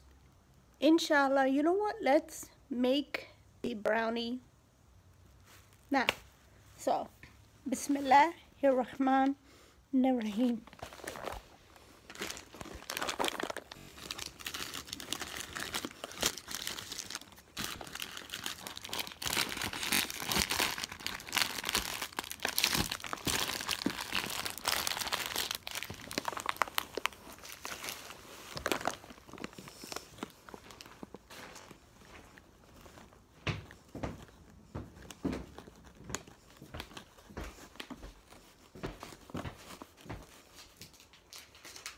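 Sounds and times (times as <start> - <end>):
plastic packaging crinkling: 10.4 - 33.2, 39.1 - 41.9.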